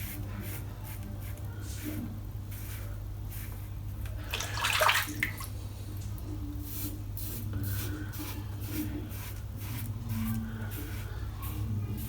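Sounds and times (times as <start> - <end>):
wet rush: 4.2 - 5.5.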